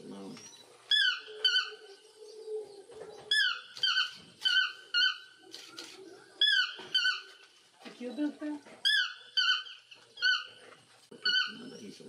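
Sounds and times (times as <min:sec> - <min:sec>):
bird calling squeaky notes: 0:03.3 - 0:07.4, 0:08.8 - 0:12.0.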